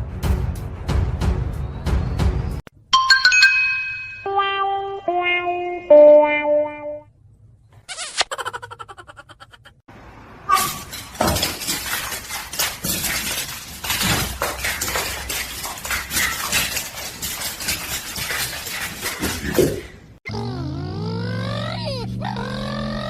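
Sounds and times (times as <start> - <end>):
hard objects clattering: 10.5 - 20.2.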